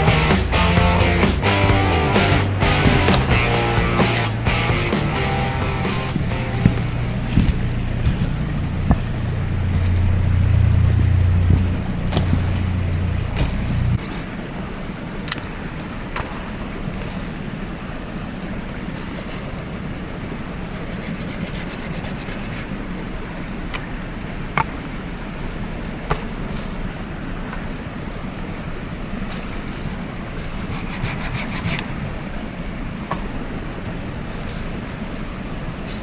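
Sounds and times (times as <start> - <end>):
sharp snaps: 0.0 - 9.1
mountain stream rushing: 0.0 - 36.0
rapid rasping scrapes: 1.4 - 14.3, 30.4 - 31.9.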